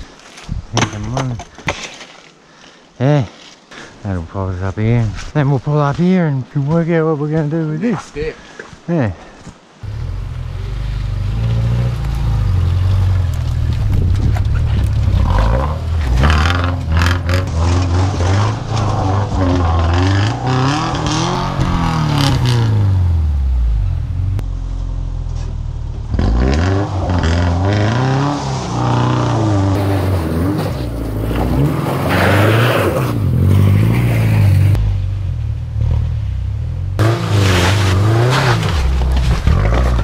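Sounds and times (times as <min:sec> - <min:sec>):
car engine revving: 0:09.8 - 0:40.0
knocks and scrapes from car: 0:29.8 - 0:33.1, 0:37.0 - 0:40.0.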